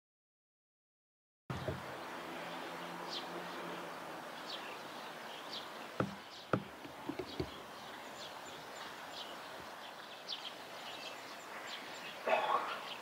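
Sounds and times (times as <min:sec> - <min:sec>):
sharp knocks: 0:01.5 - 0:01.9, 0:06.0 - 0:07.6
steady outdoor hiss: 0:01.5 - 0:13.0.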